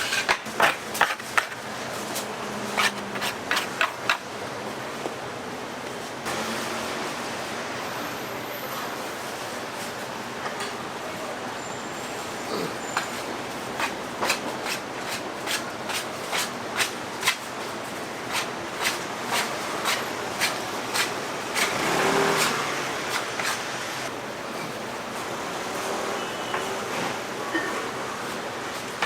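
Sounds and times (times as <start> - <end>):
busy market background noise: 0.0 - 29.0.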